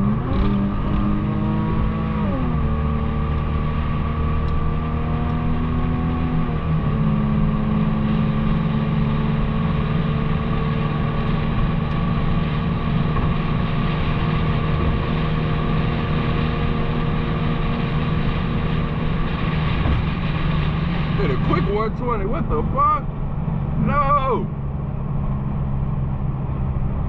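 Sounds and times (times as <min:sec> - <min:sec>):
car exhaust drone: 0:00.0 - 0:27.0.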